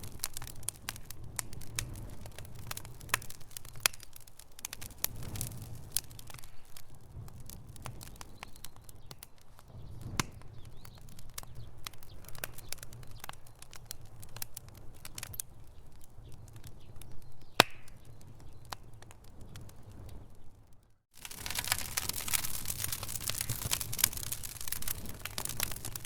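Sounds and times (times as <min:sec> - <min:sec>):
wood fire crackling in fireplace: 0:00.0 - 0:26.0.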